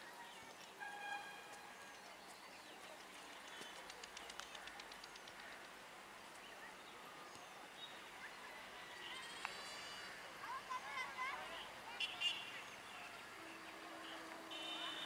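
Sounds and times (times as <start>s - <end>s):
quick run of clicks: 2.2s - 5.8s.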